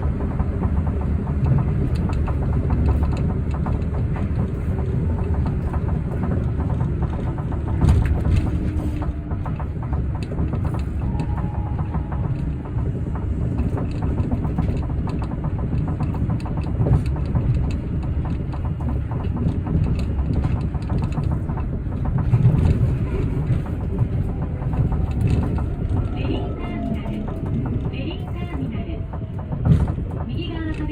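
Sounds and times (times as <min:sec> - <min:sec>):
rubber tyres rumbling on guideway: 0:00.0 - 0:30.9
rapid small clicks: 0:11.8 - 0:26.1.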